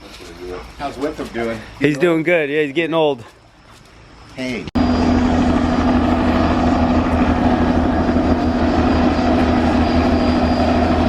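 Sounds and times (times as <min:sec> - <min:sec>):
helicopter rotor chop: 0:04.7 - 0:11.0
helicopter engine hum: 0:04.8 - 0:11.0.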